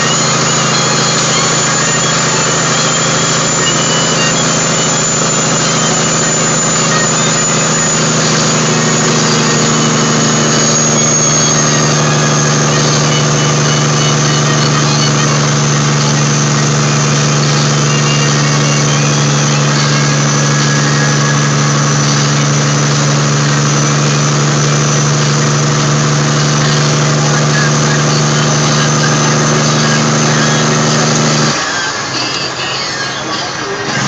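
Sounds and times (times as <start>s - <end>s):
diesel truck engine running: 0.0s - 34.0s
thin high whine: 0.0s - 34.0s.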